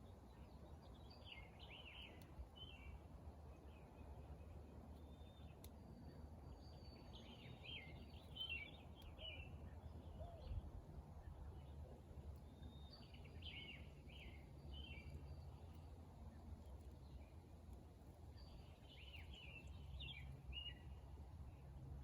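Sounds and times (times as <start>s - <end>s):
songbird chirping: 5.0s - 10.6s, 11.2s - 17.4s, 18.2s - 21.0s.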